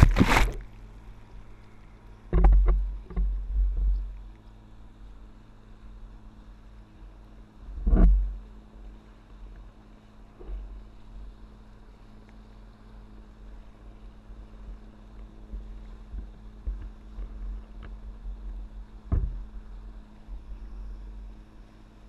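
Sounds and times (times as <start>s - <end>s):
wind rumbling on microphone: 0.0s - 1.6s, 2.2s - 4.3s, 5.8s - 11.4s, 13.5s - 22.0s
motorboat engine drone: 0.0s - 22.0s
loud thump: 19.1s - 19.4s.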